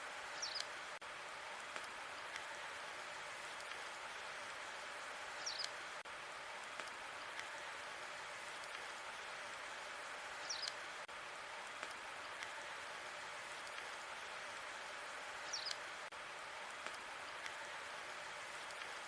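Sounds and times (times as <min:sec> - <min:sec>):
fire hissing: 0:00.0 - 0:19.0
fire crackles and pops: 0:00.2 - 0:19.0.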